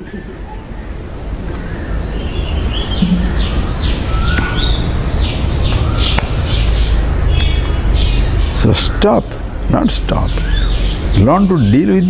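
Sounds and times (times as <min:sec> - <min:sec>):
small birds chirping: 0:00.0 - 0:12.0
steady low rumble: 0:00.7 - 0:08.6.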